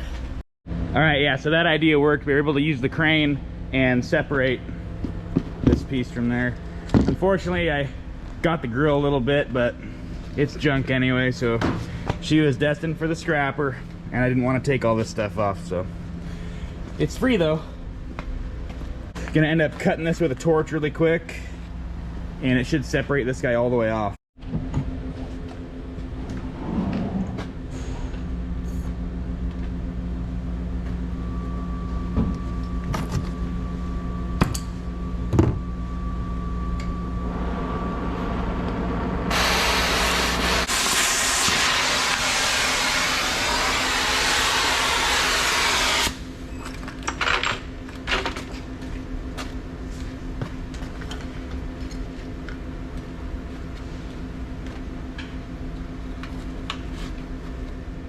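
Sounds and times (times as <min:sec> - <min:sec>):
steady low hum: 0:00.0 - 0:58.0
cutting torch jet hissing: 0:39.3 - 0:46.2.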